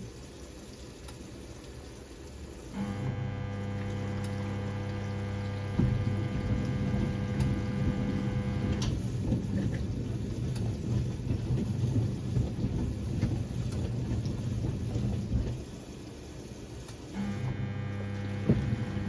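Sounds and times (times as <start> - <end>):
mains hum: 0.0 - 19.0
washing machine drum sloshing: 3.4 - 17.2, 18.3 - 19.0.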